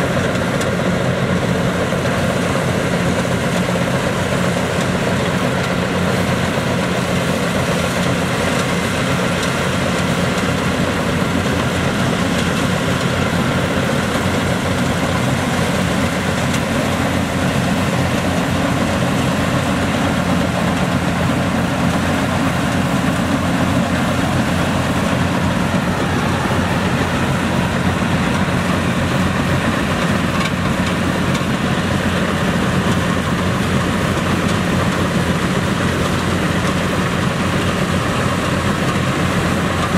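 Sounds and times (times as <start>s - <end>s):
combine harvester engine humming: 0.0s - 39.9s.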